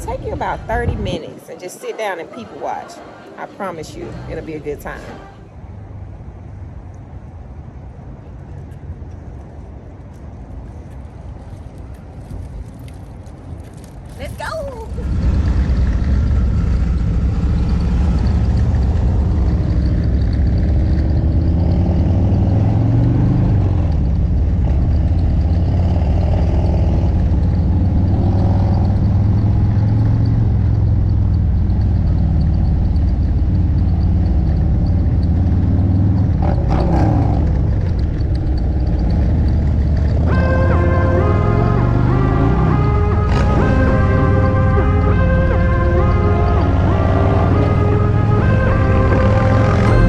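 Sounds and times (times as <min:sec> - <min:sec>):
motorcycle engine revving: 0:14.9 - 0:50.0
music: 0:40.3 - 0:50.0.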